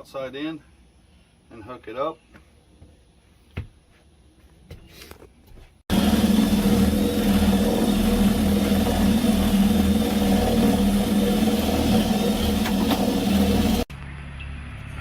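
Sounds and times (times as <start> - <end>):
power drill boring through wall: 5.9 - 13.9.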